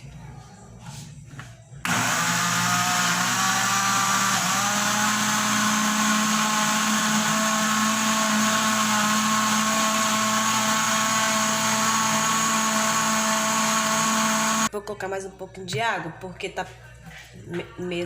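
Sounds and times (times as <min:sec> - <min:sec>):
kitchen blender running: 0:01.8 - 0:14.7.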